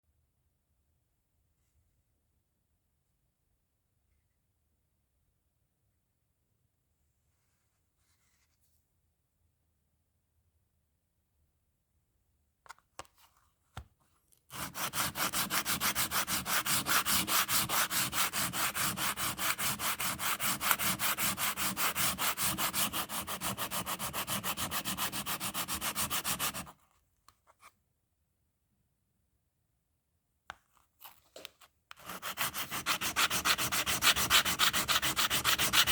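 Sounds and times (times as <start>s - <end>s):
brake pad rubbing on sandpaper: 14.5s - 26.7s, 32.0s - 35.9s.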